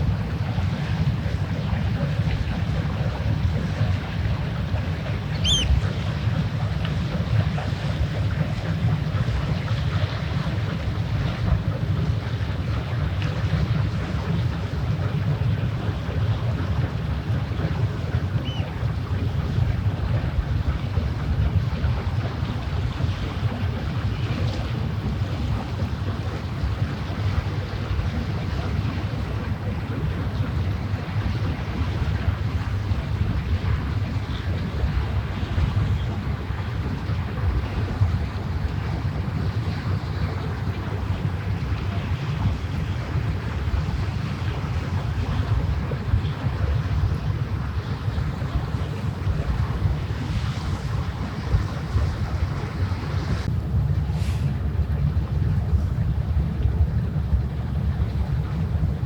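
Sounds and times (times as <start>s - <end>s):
water along shore: 0.0s - 59.0s
wind on microphone: 0.0s - 59.0s
short high call: 5.4s - 5.8s.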